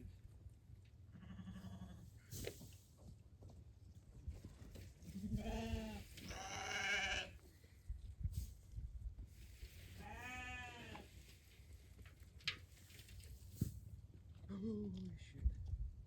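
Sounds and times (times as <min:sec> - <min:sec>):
sheep bleating: 0:01.1 - 0:02.0, 0:05.2 - 0:07.4, 0:10.0 - 0:11.0.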